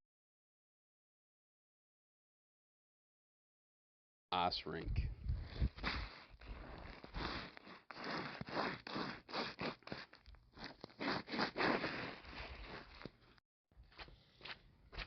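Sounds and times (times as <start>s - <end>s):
footsteps crunching on ice: 5.6s - 15.0s.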